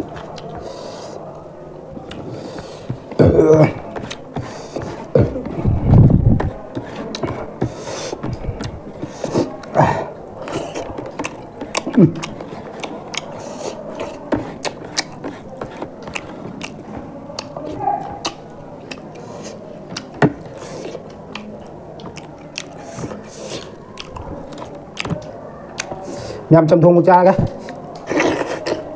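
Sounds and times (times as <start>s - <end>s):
wet chewing and lip-smacking: 10.4s - 26.1s.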